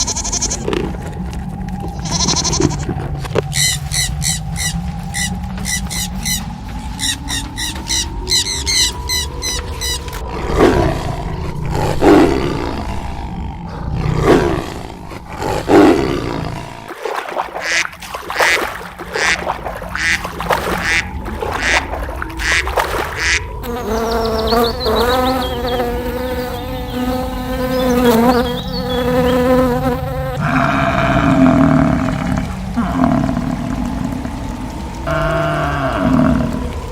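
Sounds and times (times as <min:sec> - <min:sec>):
long steady animal call: 0:01.9 - 0:16.9, 0:22.4 - 0:36.9
rapid animal calls: 0:02.0 - 0:16.9.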